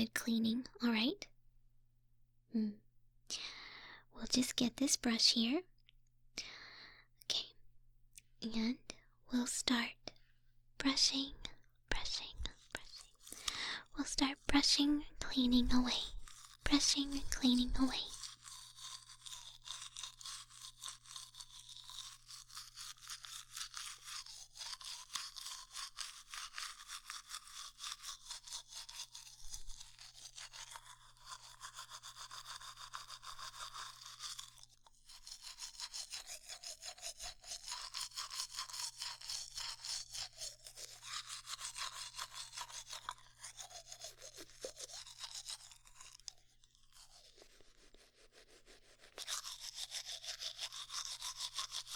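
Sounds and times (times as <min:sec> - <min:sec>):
bristly brushing strokes: 0:14.0 - 0:51.9.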